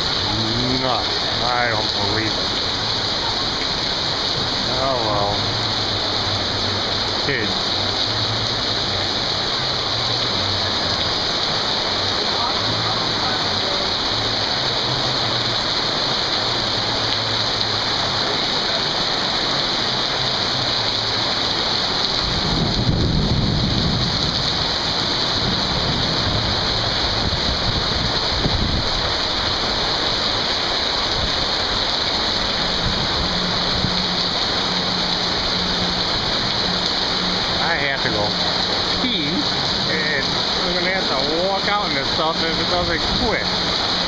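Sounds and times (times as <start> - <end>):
heavy rain pouring: 0.0 - 44.0
low thunder rumble: 22.4 - 24.7.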